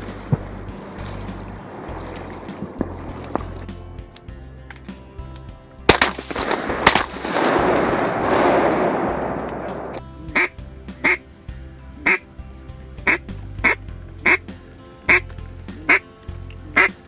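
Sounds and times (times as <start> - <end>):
background music: 0.0 - 17.0
gunfire echo: 5.9 - 10.0
duck quacks: 10.3 - 11.2, 12.0 - 12.2, 13.1 - 14.4, 15.8 - 16.1, 16.7 - 17.0.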